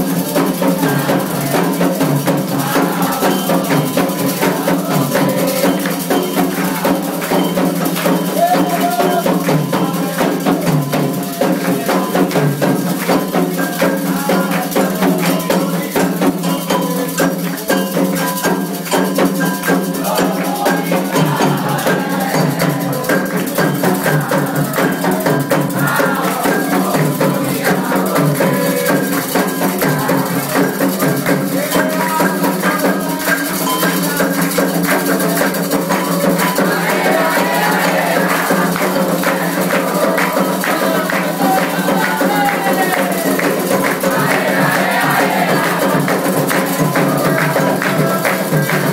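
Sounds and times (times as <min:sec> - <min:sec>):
hand percussion: 0:00.0 - 0:48.9
people singing: 0:00.0 - 0:48.9
shaker rattles: 0:00.0 - 0:48.9.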